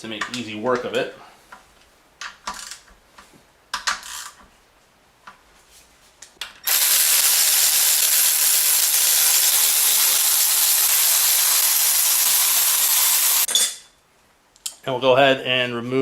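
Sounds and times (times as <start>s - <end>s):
air ratchet hissing: 6.7s - 13.5s.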